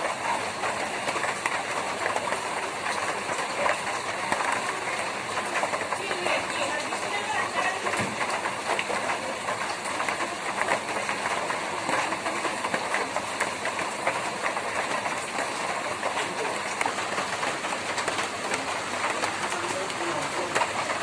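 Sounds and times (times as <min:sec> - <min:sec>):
rain on a tin roof: 0:00.0 - 0:21.0.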